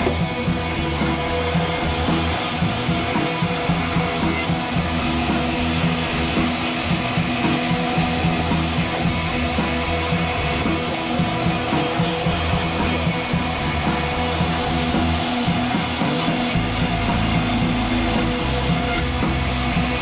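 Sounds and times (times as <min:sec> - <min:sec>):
rock music with guitar and drums: 0:00.0 - 0:20.0.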